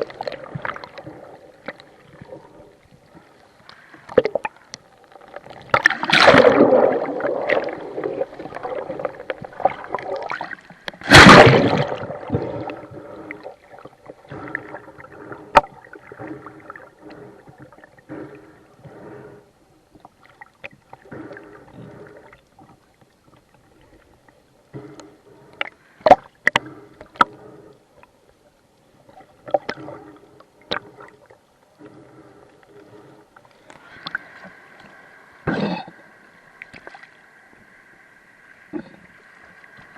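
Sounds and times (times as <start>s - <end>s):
seawater sloshing and gurgling: 5.2s - 17.9s
water splashing surges: 5.7s - 12.9s.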